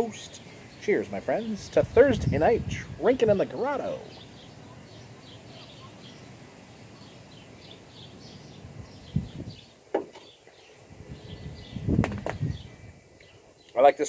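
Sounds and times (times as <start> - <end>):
outdoor background noise: 0.0 - 14.0
small bird chirping: 3.9 - 13.8.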